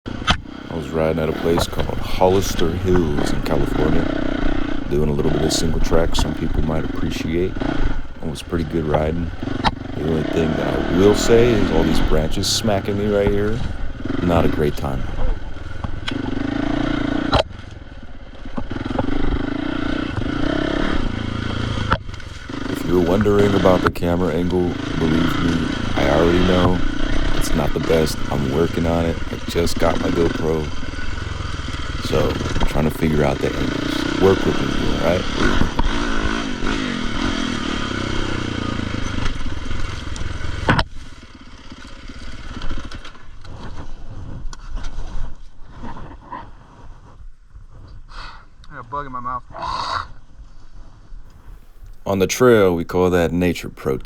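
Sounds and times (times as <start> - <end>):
sharp crack: 0.1 - 16.3, 21.6 - 40.9
dirt bike engine revving: 0.1 - 44.2, 51.3 - 54.0.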